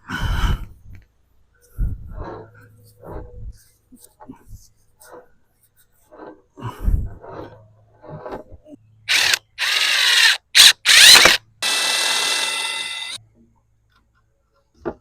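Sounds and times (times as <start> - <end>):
power drill running: 9.1 - 13.2.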